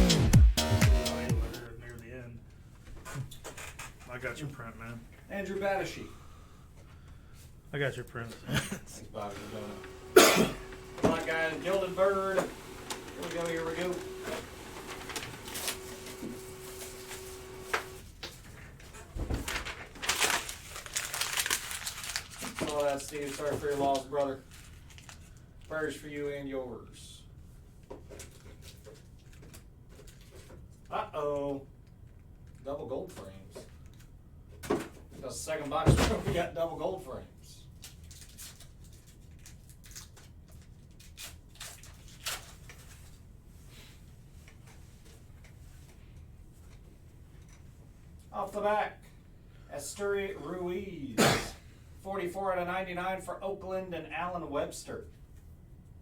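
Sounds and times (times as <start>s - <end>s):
clicks of card packs: 9.3s - 18.4s
cardboard and wrapper rustling: 10.7s - 18.0s, 18.6s - 25.4s.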